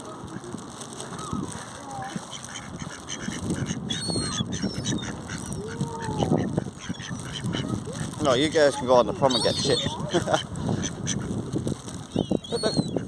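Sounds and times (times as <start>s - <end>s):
geese honking: 2.0s - 8.1s
ducks quacking: 2.0s - 11.4s.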